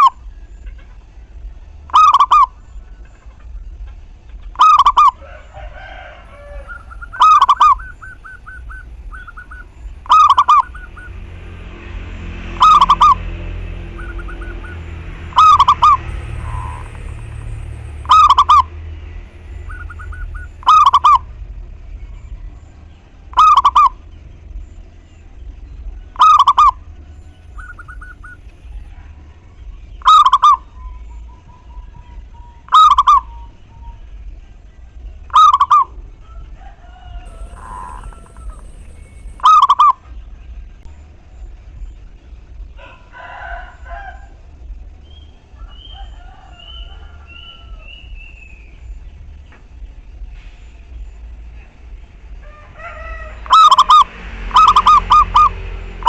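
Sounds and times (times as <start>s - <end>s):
faint calls of other birds: 0.0s - 11.7s, 12.4s - 56.0s
dove cooing: 1.9s - 2.6s, 4.4s - 11.3s, 12.6s - 18.8s, 19.4s - 21.5s, 23.3s - 24.0s, 35.3s - 40.0s, 53.4s - 56.0s.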